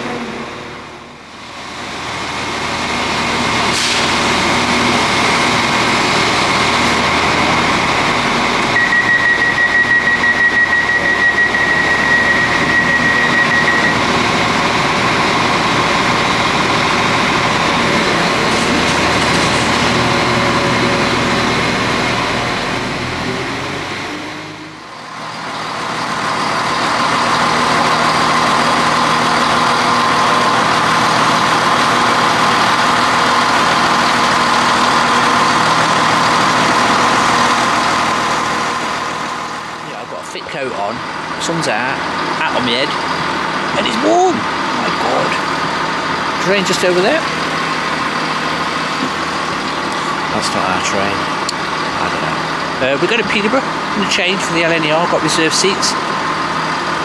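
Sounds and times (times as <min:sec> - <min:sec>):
diesel train engine running: 0:00.0 - 0:57.0
high rapidly pulsing beep: 0:08.8 - 0:14.0.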